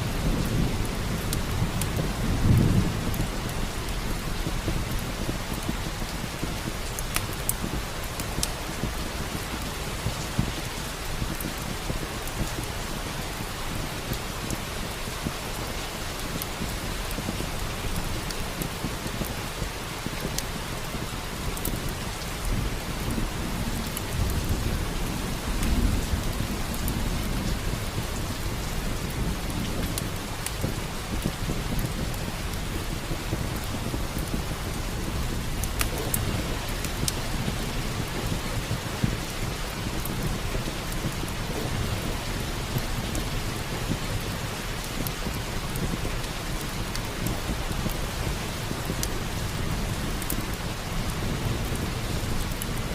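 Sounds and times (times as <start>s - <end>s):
thunder rumble: 0.0s - 7.9s, 21.8s - 52.5s
steady rain: 0.0s - 52.9s
wood fire crackling: 0.0s - 52.9s.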